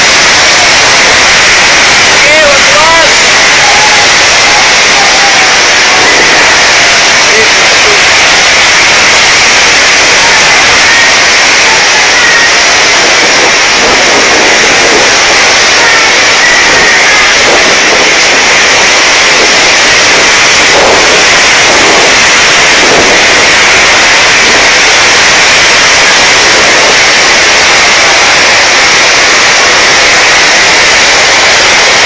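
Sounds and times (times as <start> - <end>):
strong wind blowing: 0.0 - 32.0.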